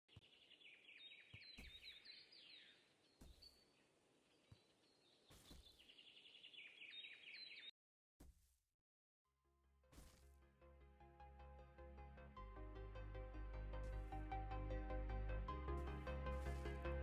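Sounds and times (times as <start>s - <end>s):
bird chirping: 0.1s - 7.7s.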